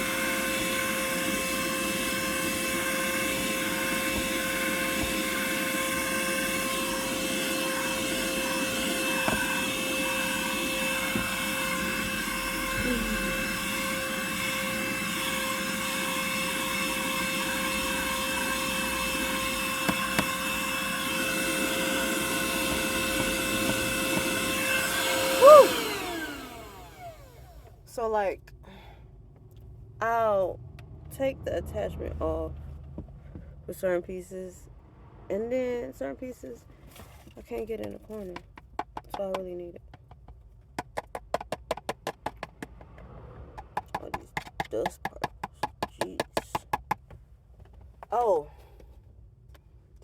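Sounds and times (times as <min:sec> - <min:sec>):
vacuum cleaner motor whine: 0:00.0 - 0:27.8.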